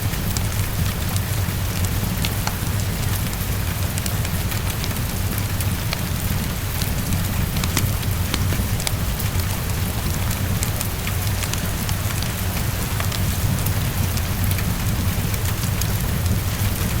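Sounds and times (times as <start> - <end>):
heavy rain on a window: 0.0 - 17.0
fireplace crackling: 3.8 - 11.5.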